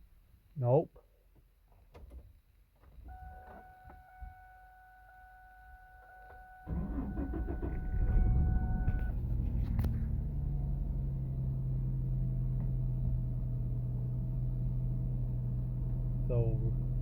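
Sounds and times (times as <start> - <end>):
car engine starting and idling: 6.0 - 17.0.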